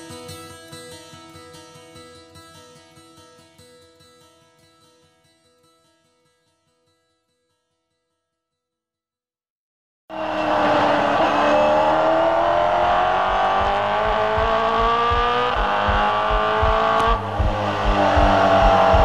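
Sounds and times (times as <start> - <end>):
racing car engine accelerating: 10.1 - 19.0
regular low thump: 12.4 - 19.0.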